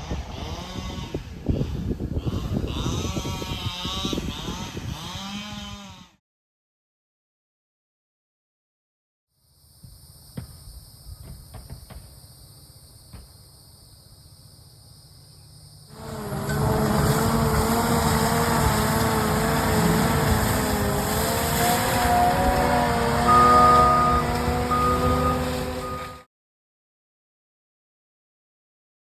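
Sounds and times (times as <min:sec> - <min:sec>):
mulching machine engine: 0:15.9 - 0:26.2
wavering whine: 0:15.9 - 0:26.2.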